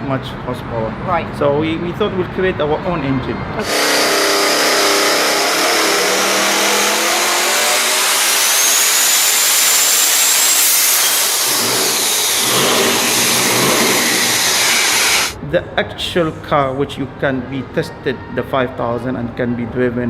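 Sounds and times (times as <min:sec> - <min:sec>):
car engine revving with whine: 0:03.6 - 0:15.4.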